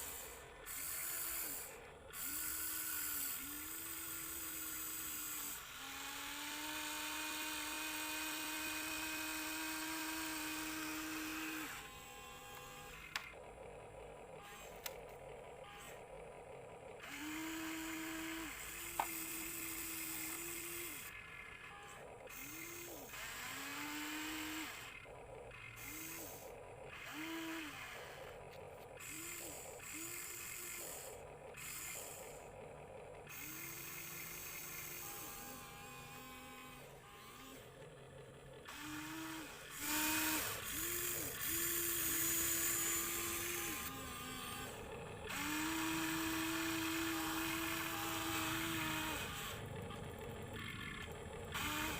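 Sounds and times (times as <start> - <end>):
small electric motors whirring: 0.0 - 51.9.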